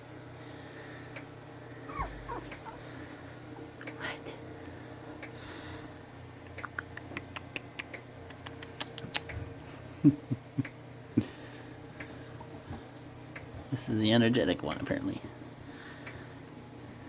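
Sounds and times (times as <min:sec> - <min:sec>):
steady low hum: 0:00.0 - 0:17.0
short low puppy sounds: 0:01.9 - 0:02.9
puppies clicking and ticking: 0:01.9 - 0:03.0, 0:06.5 - 0:09.4.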